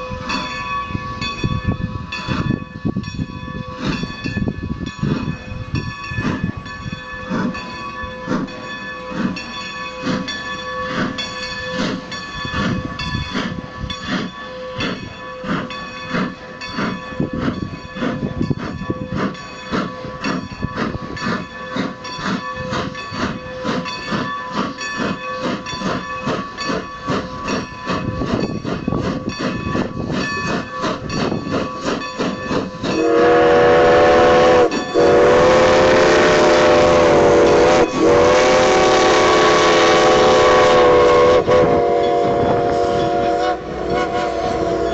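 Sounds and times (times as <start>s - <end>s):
locomotive bell ringing: 0.0s - 44.9s
steam whistle chord: 32.9s - 44.9s.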